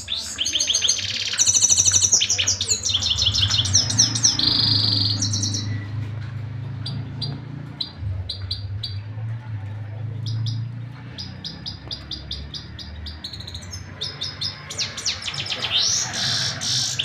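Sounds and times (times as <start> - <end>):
finch chirping and trilling: 0.0 - 6.0, 10.2 - 17.0.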